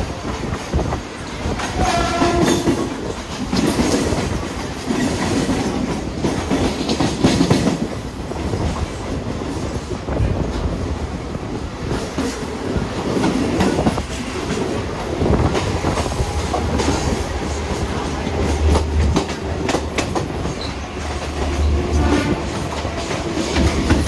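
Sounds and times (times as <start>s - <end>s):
train rumbling on track: 0.0s - 24.0s
wheels clacking over rail joints: 13.1s - 24.0s.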